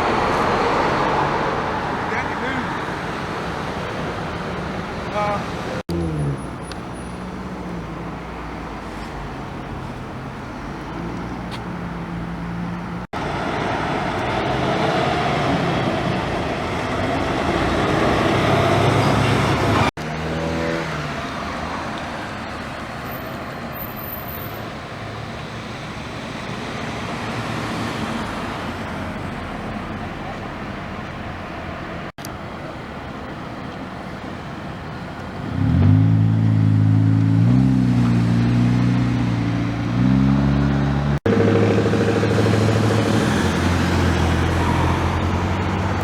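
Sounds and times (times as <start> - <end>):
cars passing: 0.0 - 46.0
vehicle accelerating past: 12.2 - 21.3, 35.4 - 46.0.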